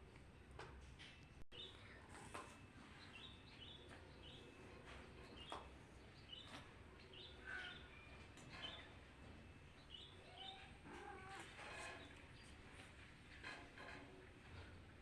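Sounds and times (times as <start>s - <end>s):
faint bird chirps: 2.9s - 9.0s, 9.8s - 12.6s.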